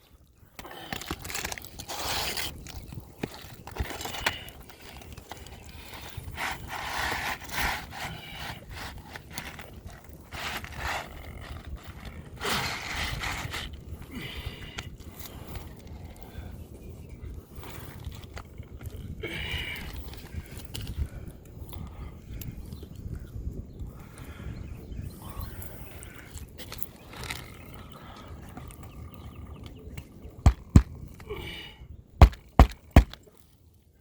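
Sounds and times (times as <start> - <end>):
roof shingles scraping and crackling: 0.7 - 13.8.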